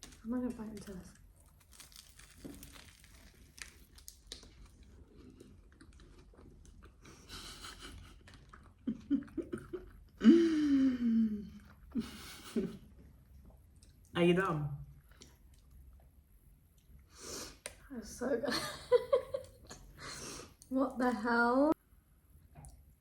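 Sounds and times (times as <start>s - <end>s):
chewing and crunching pastry: 0.0s - 10.3s, 11.2s - 14.1s, 14.9s - 17.1s.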